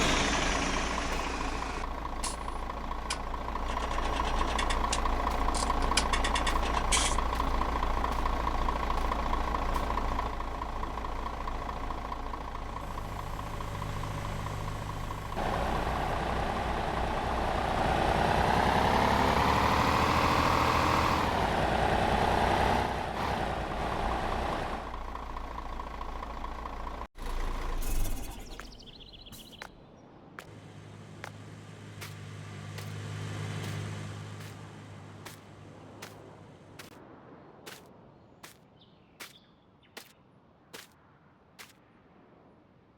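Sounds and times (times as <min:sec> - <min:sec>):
old tractor engine running: 0:00.0 - 0:19.2.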